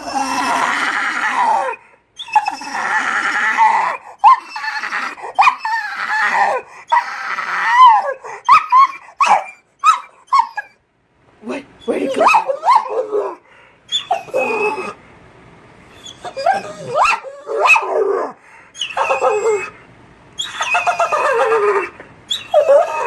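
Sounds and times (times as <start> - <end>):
dog whining: 0.0 - 10.8, 11.8 - 15.0, 15.9 - 19.8, 20.4 - 23.0
dog vocalizing: 16.0 - 18.2, 20.4 - 23.0.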